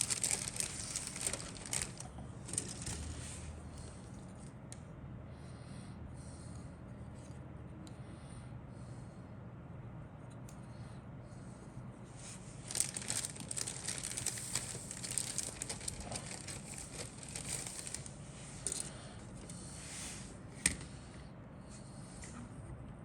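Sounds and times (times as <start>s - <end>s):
plastic wrapping crinkling: 0.0s - 3.5s, 12.2s - 19.0s.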